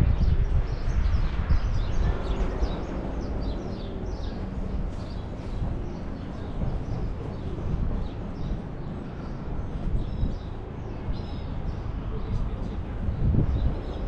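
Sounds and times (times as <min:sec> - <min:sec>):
low street rumble: 0:00.0 - 0:14.0
small birds chirping: 0:00.2 - 0:14.0.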